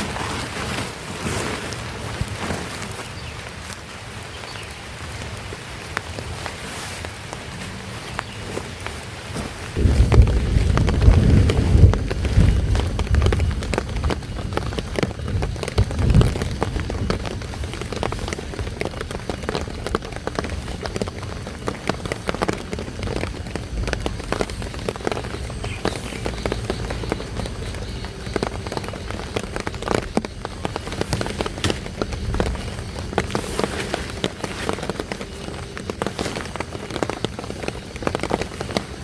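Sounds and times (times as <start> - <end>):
heavy rain pattering: 0.0 - 39.0
low rumble: 9.8 - 19.9.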